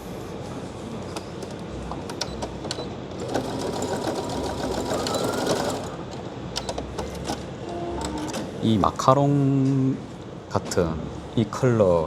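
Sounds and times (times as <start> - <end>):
sewing machine stitching: 1.1 - 8.6.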